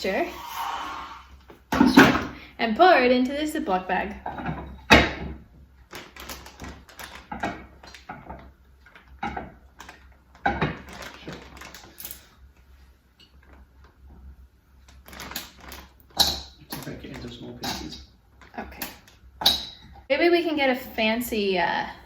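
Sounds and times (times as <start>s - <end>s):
plastic bag rustling: 5.9s - 8.0s, 10.8s - 12.3s.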